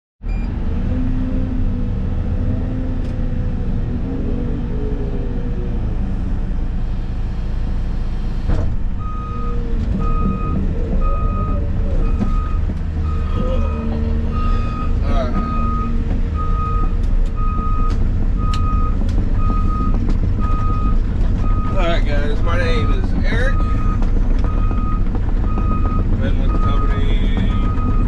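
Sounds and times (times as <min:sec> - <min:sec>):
excavator diesel engine running: 0:00.3 - 0:28.0
reversing alarm beeping: 0:09.0 - 0:21.8, 0:23.5 - 0:28.0.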